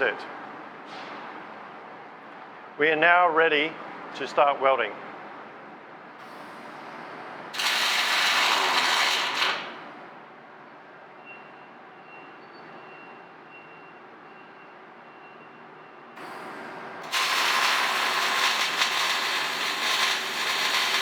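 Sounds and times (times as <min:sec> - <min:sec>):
welding arc hissing: 0:07.5 - 0:09.9, 0:17.0 - 0:21.0.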